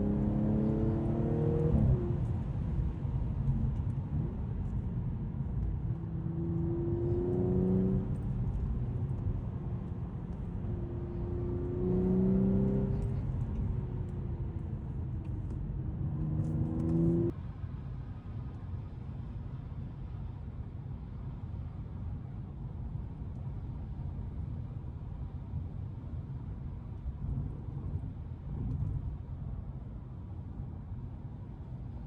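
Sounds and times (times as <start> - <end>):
car engine accelerating: 0.0 - 17.3
road noise: 0.0 - 20.1.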